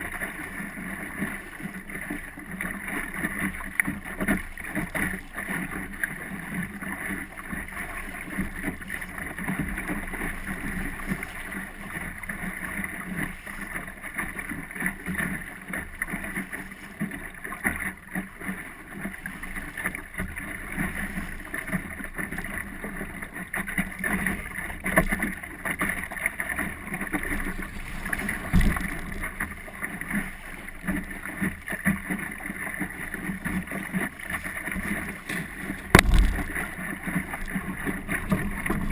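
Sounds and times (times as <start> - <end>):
water rushing along hull: 0.0 - 38.9
small knocks and rattles: 27.5 - 29.4, 35.3 - 36.6
low thump: 27.8 - 29.3, 35.8 - 36.6.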